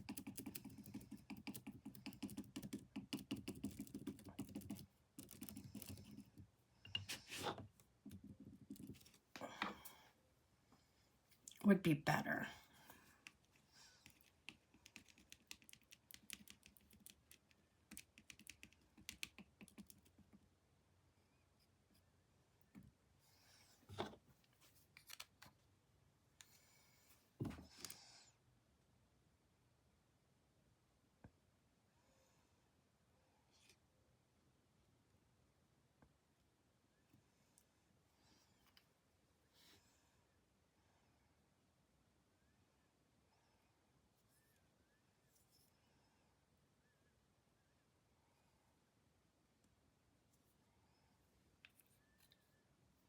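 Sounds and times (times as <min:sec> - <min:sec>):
painting tool scraping canvas: 0:07.0 - 0:07.7.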